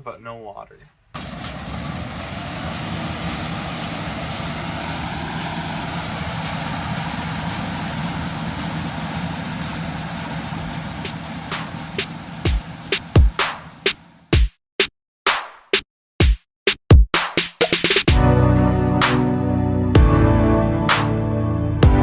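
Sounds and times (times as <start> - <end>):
farm machinery engine running: 1.2 - 14.3.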